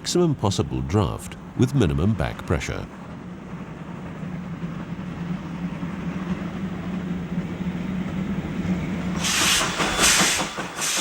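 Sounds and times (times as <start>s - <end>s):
steam locomotive low hum: 0.0s - 11.0s
steam exhaust hissing: 9.0s - 11.0s.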